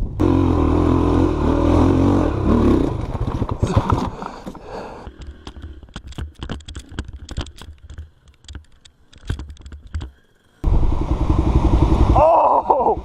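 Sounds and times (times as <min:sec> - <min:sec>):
dirt bike engine running: 0:00.0 - 0:07.6, 0:10.6 - 0:13.0
light clicks and ticks: 0:04.4 - 0:10.2.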